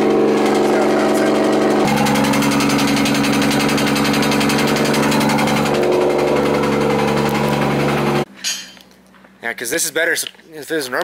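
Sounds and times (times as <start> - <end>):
car engine idling: 0.0 - 8.3.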